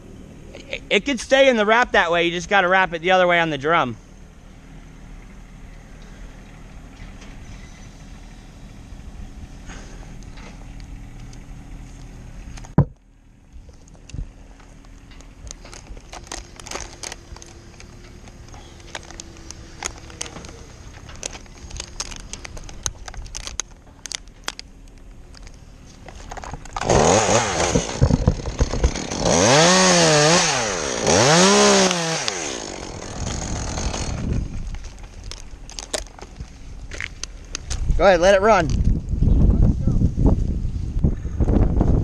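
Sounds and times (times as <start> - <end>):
chainsaw running and cutting: 26.8 - 34.5.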